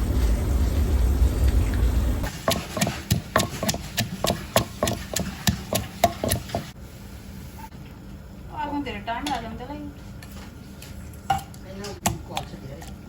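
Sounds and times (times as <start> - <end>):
steady low rush: 0.0 - 2.5
wooden implement knocking: 2.3 - 6.7.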